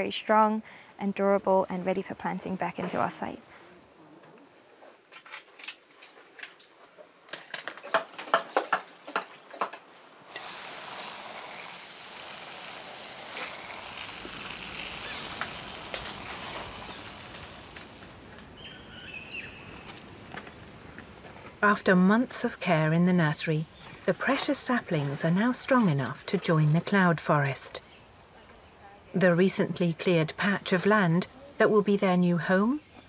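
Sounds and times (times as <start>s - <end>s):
faint wind hiss: 9.8s - 25.7s
bird chirp: 18.0s - 21.1s.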